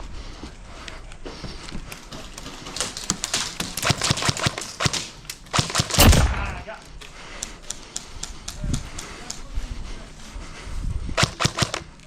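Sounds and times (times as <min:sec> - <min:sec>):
sharp irregular clicks and knocks: 0:01.8 - 0:06.2, 0:06.9 - 0:09.5, 0:11.2 - 0:12.0.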